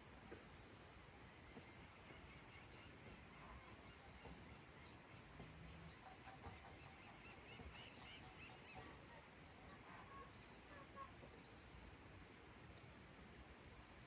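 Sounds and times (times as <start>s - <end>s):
steady high hiss: 0.0s - 14.0s
distant birds calling: 1.5s - 11.6s.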